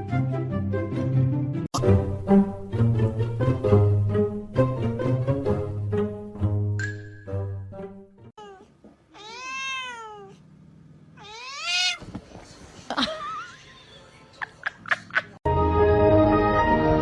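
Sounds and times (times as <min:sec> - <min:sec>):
cat meowing: 0:08.4 - 0:10.4, 0:11.2 - 0:12.1.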